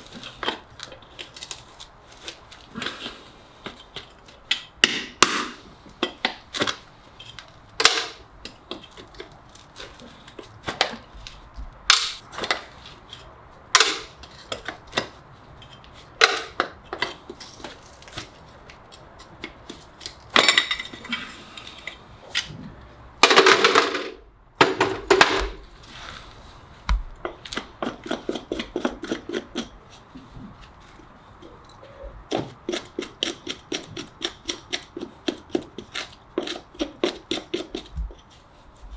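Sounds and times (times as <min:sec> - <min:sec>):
hoof tools clicking and snipping: 0:11.9 - 0:21.0, 0:26.9 - 0:38.4
scraping strokes on hoof: 0:25.6 - 0:38.9.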